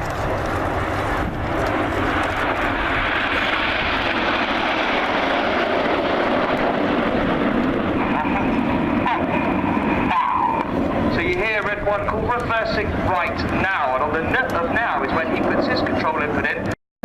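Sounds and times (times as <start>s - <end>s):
jets flying past: 0.0s - 16.7s.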